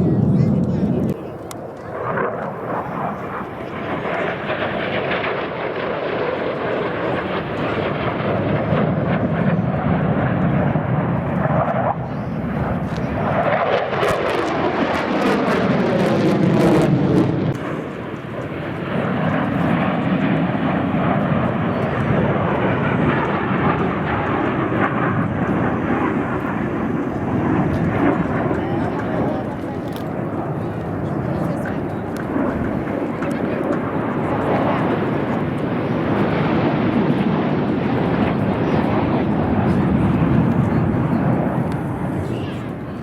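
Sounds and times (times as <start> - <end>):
airplane engine passing low: 0.0 - 43.0.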